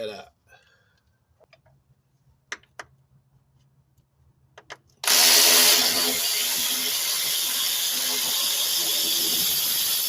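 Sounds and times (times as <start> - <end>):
power tool running: 5.0 - 10.0.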